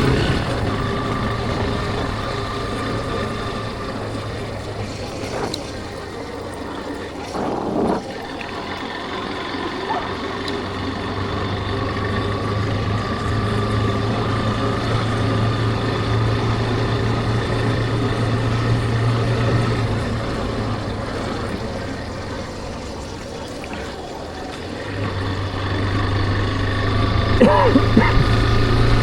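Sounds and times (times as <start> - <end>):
motorcycle engine running: 0.0 - 29.0
road noise: 0.0 - 29.0
wind: 0.0 - 29.0.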